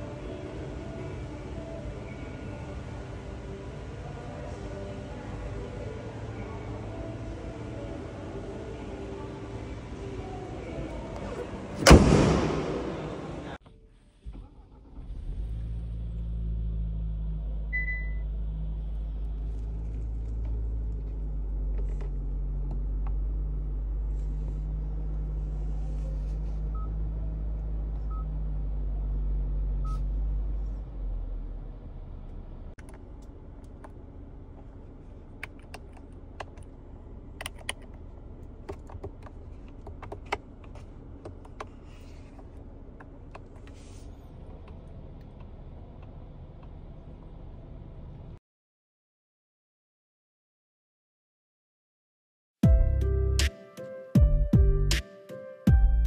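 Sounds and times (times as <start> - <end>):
car engine idling: 0.0 - 48.4
short electronic beeps: 17.8 - 18.2.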